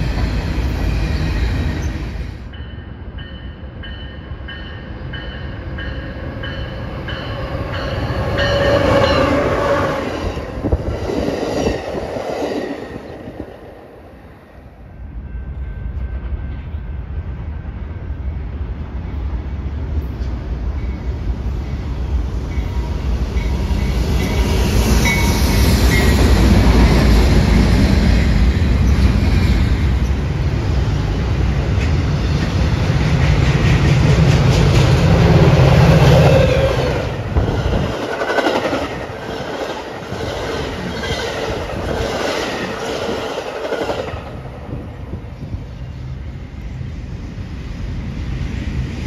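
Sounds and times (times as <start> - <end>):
train passing with low rumble: 0.0 - 49.0
train wheels clicking over rail joints: 31.6 - 36.6.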